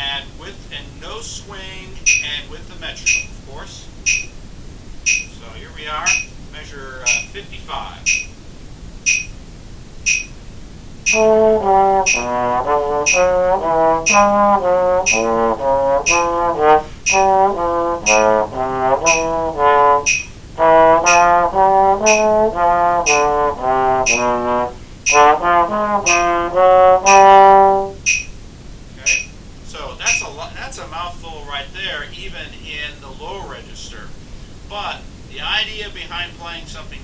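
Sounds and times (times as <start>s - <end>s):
trombone playing jazz phrases: 0.0s - 4.0s, 11.0s - 28.1s
metronome clicks: 2.1s - 2.4s, 3.0s - 3.3s, 4.0s - 4.4s, 5.1s - 5.3s, 6.1s - 6.4s, 7.1s - 7.3s, 8.0s - 8.4s, 9.0s - 9.4s, 10.1s - 10.4s, 11.0s - 28.4s, 29.1s - 29.4s.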